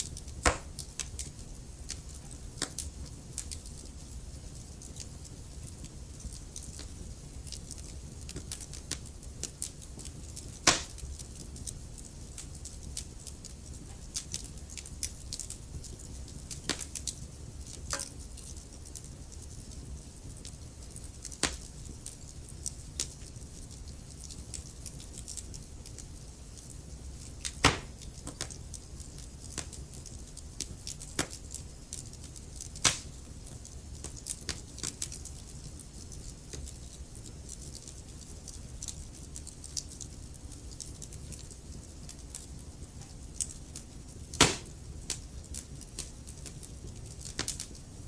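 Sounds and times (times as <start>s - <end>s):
logs crackling in fireplace: 0.0s - 48.0s
low rumble of fire: 0.0s - 48.0s
sharp pops of burning wood: 0.1s - 3.9s, 5.7s - 18.7s, 20.4s - 21.7s, 26.6s - 31.4s, 32.0s - 35.1s, 43.4s - 46.6s, 47.2s - 47.7s.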